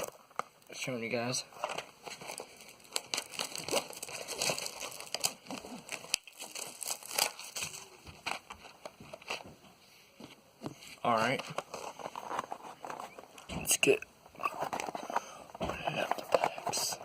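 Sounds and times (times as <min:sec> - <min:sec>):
plastic shrink wrap crinkling: 0:00.0 - 0:09.5, 0:11.1 - 0:13.5.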